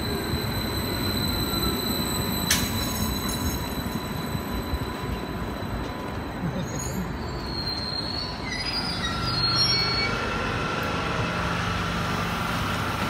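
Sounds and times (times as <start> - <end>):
high-pitched wheel squeal: 0.0 - 10.4
electric train rumbling: 0.0 - 13.0.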